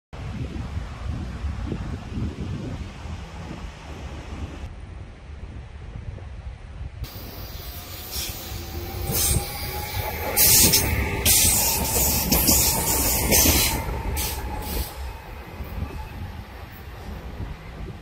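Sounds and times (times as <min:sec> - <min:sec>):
train low rumble: 0:00.2 - 0:18.0
train wheels squealing: 0:07.4 - 0:16.9.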